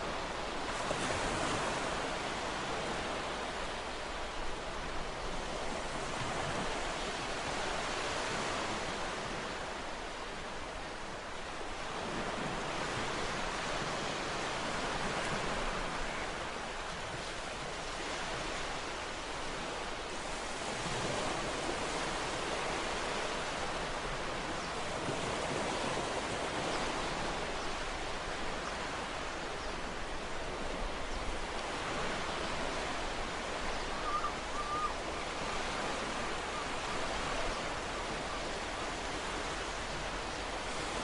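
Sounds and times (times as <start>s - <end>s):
ocean surf washing ashore: 0.0s - 41.0s.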